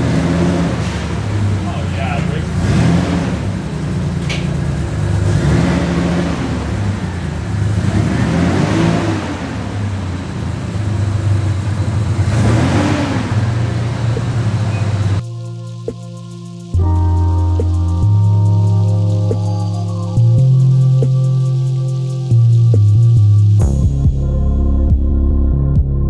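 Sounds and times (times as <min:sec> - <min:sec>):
car engine accelerating: 0:00.0 - 0:15.3.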